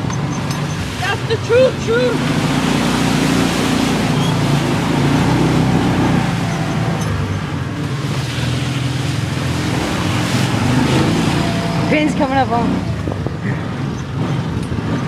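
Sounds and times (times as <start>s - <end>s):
off-road vehicle engine under load: 0.0s - 15.0s
water and mud splashing: 0.0s - 15.0s.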